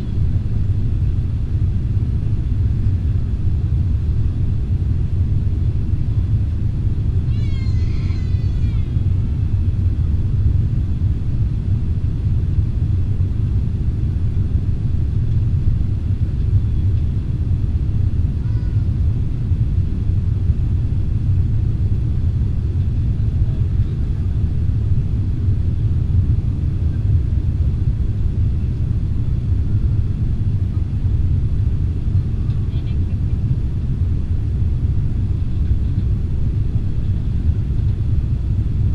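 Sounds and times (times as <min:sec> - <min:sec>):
airliner cabin rumble: 0:00.0 - 0:38.9
high-pitched wavering cry: 0:07.3 - 0:09.0.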